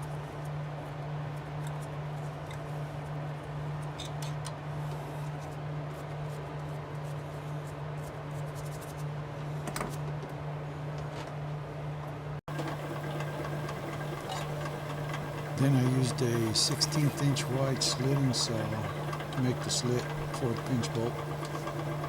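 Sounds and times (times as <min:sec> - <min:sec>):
electric machine hum: 0:12.5 - 0:22.0.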